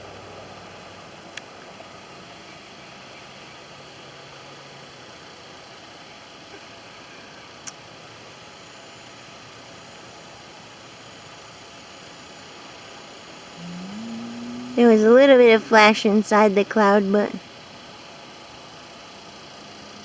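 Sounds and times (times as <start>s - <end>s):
faint low hum: 13.4s - 17.4s.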